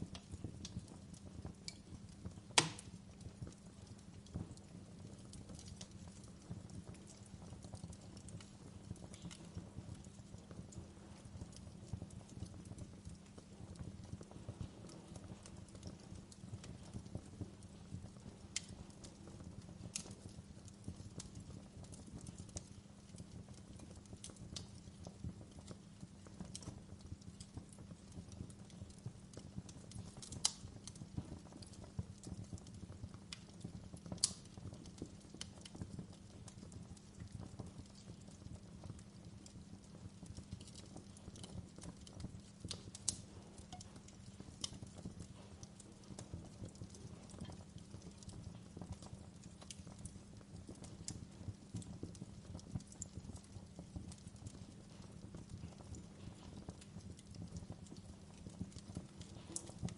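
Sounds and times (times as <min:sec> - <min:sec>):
low rush of flames: 0:00.0 - 0:59.9
small fire crackles: 0:00.0 - 0:59.9
sharp fire pops: 0:01.7 - 0:03.6, 0:34.1 - 0:37.3, 0:58.6 - 0:59.9.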